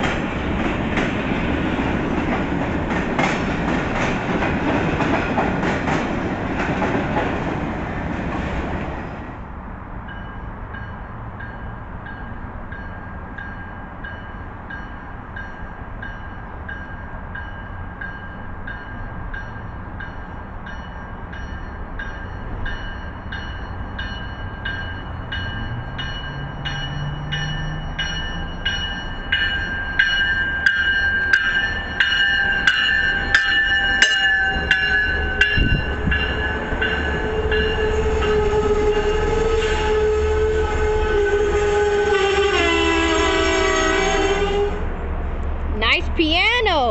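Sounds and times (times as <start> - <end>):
diesel train approaching: 0.0 - 46.9
locomotive bell ringing: 10.1 - 40.1
train horn: 37.0 - 44.9.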